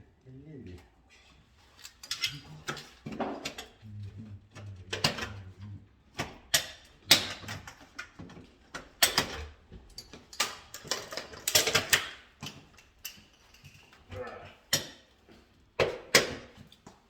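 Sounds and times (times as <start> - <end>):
tools clicking and snapping: 1.8 - 3.7, 6.2 - 13.8, 14.7 - 15.0.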